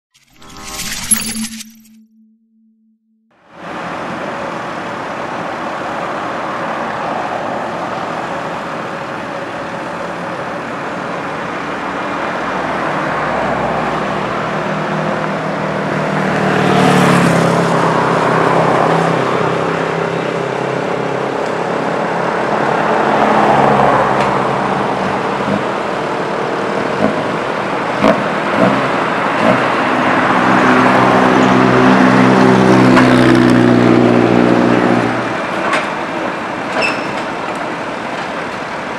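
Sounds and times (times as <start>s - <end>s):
excavator diesel engine revving: 23.2s - 35.7s.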